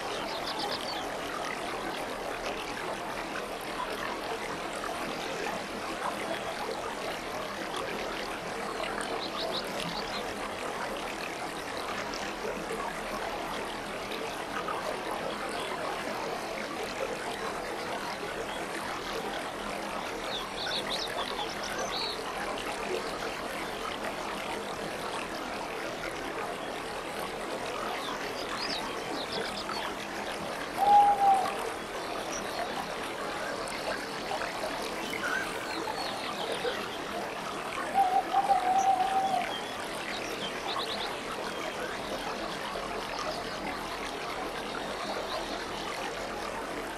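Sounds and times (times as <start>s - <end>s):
aquarium water bubbling: 0.0s - 46.9s.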